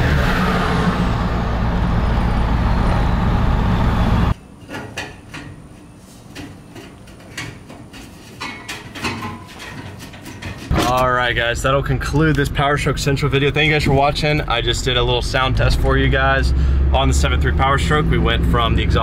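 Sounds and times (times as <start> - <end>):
diesel engine running hard: 0.0 - 4.4, 14.1 - 19.0.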